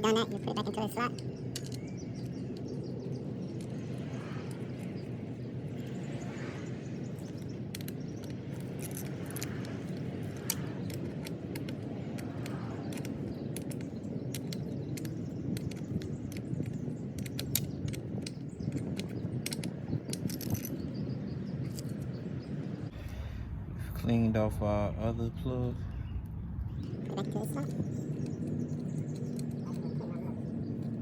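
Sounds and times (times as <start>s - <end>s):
low background rumble: 0.0s - 31.0s
metallic clicks of hand tools: 7.4s - 20.8s.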